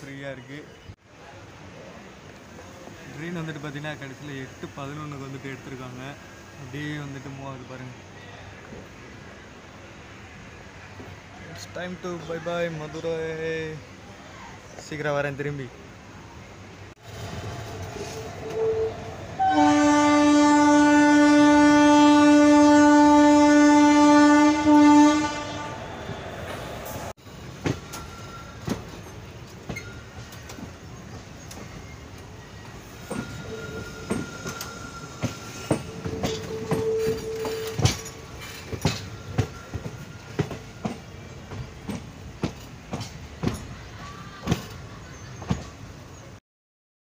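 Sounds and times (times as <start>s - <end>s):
train horn blast: 17.9s - 26.4s, 35.8s - 38.2s
train wheels clicking over rail joints: 27.2s - 45.8s.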